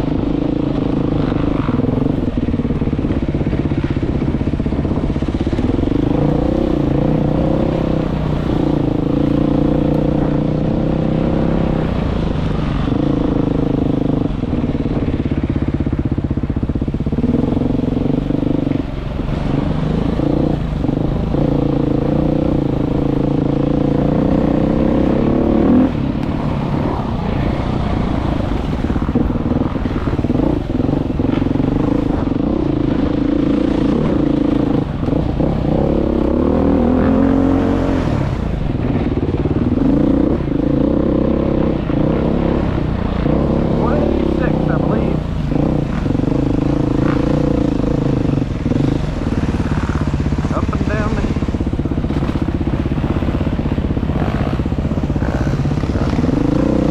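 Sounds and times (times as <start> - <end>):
motorcycle engine running hard: 0.0 - 56.9.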